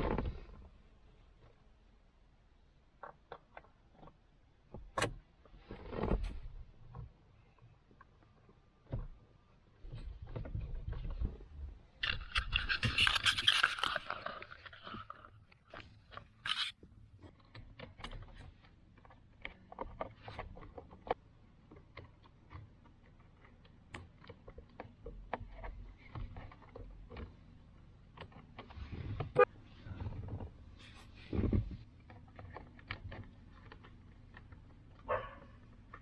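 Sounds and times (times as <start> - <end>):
scrape: 12.0 - 15.3, 16.5 - 16.8, 28.7 - 31.8.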